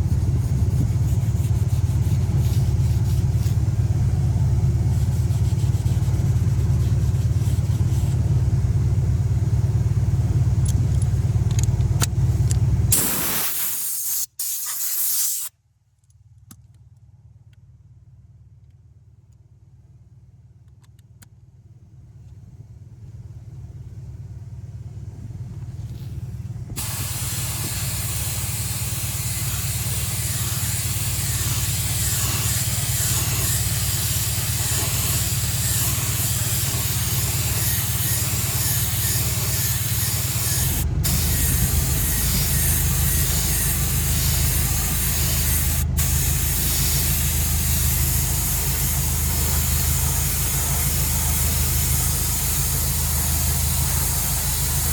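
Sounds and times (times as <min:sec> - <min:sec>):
spray paint hiss: 0:00.0 - 0:08.2, 0:12.9 - 0:15.5, 0:26.8 - 0:54.9
steady low hum: 0:00.0 - 0:14.0, 0:21.6 - 0:54.9.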